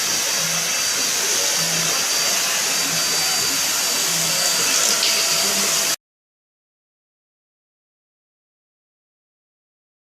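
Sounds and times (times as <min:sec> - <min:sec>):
handheld vacuum cleaner running: 0:00.0 - 0:06.0.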